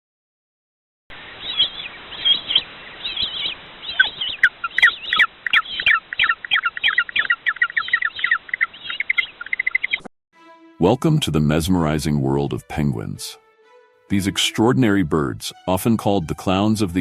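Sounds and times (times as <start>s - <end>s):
birds chirping: 1.3s - 10.1s.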